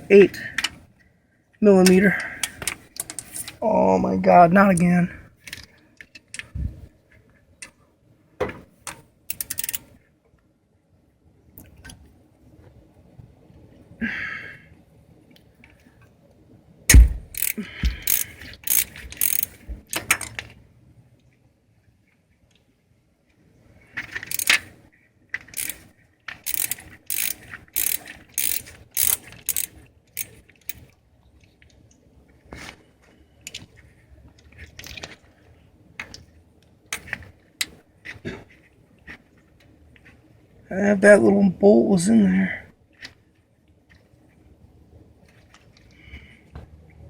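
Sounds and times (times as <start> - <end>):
hand ratchet clicking: 9.3 - 9.8, 16.9 - 20.3, 24.2 - 24.6, 25.5 - 25.8, 26.4 - 30.8.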